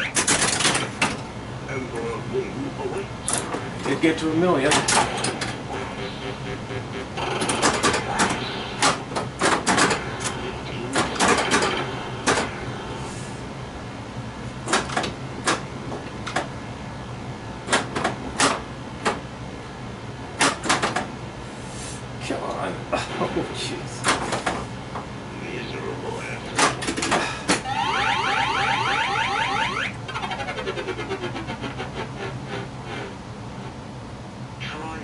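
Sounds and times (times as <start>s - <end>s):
pinball machine clacks: 0.0s - 1.2s, 3.3s - 5.6s, 7.0s - 12.6s, 14.6s - 16.6s, 17.6s - 19.3s, 20.4s - 21.2s, 26.6s - 28.2s
low machine hum: 0.0s - 35.0s.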